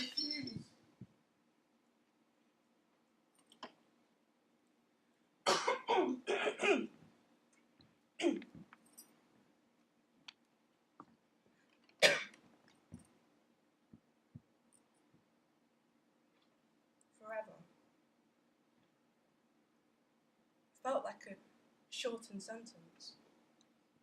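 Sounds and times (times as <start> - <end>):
faint small clicks: 3.3 - 3.8, 10.2 - 13.2, 16.3 - 17.2, 23.6 - 23.8.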